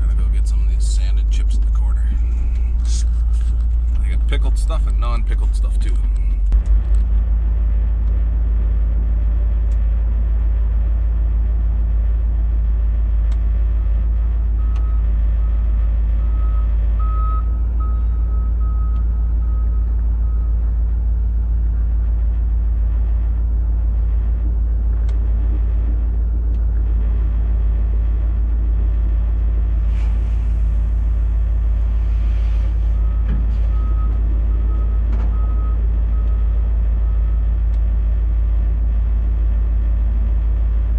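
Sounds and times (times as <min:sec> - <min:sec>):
truck engine running: 0:00.0 - 0:40.9
reversing alarm beeping: 0:14.6 - 0:20.5, 0:32.9 - 0:36.5.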